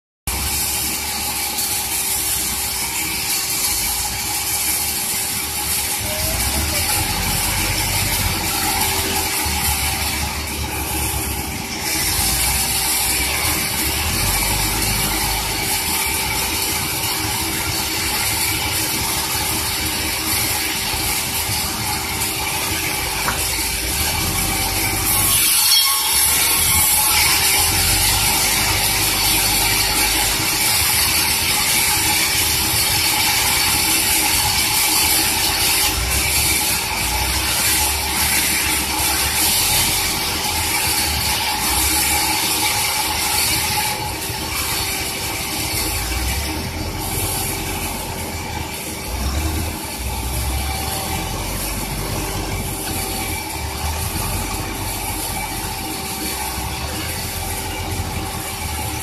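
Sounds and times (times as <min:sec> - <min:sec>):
sawmill machinery humming: 0:00.3 - 0:59.0
deep rumble: 0:45.8 - 0:59.0.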